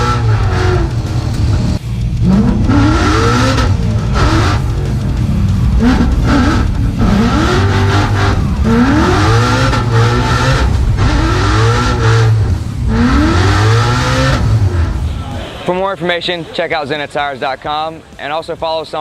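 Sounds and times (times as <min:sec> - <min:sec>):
car engine revving hard: 0:00.0 - 0:15.2.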